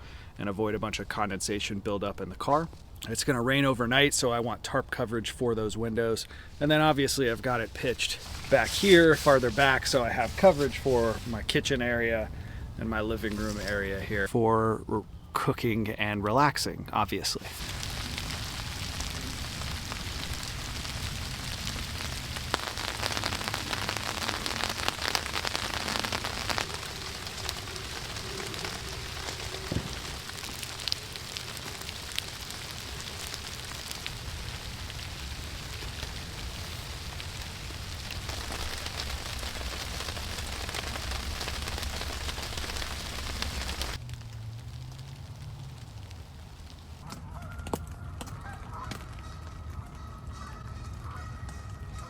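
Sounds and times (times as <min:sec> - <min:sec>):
rain pattering on a tarp: 0:06.6 - 0:14.1, 0:17.4 - 0:49.8.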